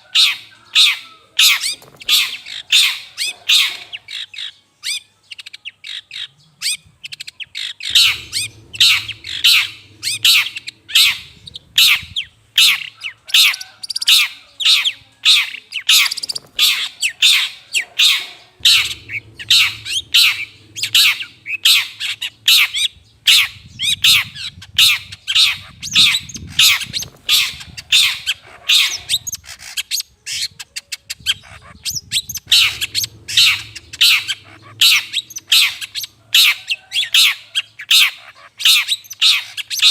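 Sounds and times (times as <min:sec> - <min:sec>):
shrike giving harsh scratchy calls: 0:07.8 - 0:12.9, 0:15.9 - 0:29.6.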